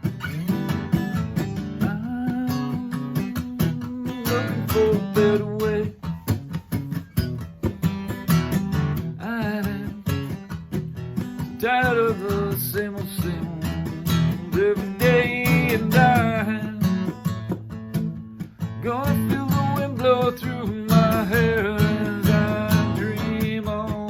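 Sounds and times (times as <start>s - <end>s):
acoustic guitar strumming: 0.0s - 24.0s
person singing: 1.7s - 6.2s, 11.5s - 17.2s, 18.8s - 24.0s.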